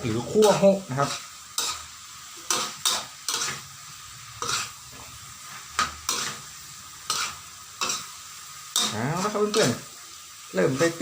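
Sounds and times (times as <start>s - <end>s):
food sizzling in oil: 0.0s - 11.0s
spatula scraping frying pan: 0.0s - 11.0s.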